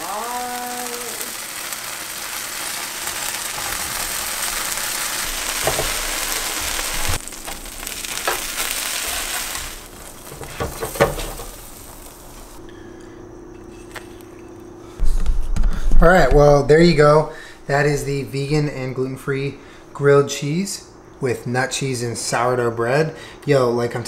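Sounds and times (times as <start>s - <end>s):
sandwiches sizzling in pan: 0.0s - 12.6s
faint steady hum: 0.0s - 24.0s.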